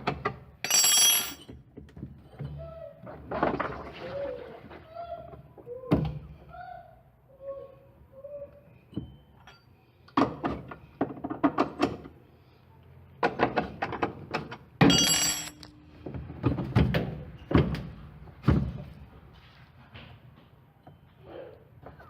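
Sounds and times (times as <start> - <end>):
tools and metal parts clicking: 0.6 - 1.6, 14.8 - 15.7.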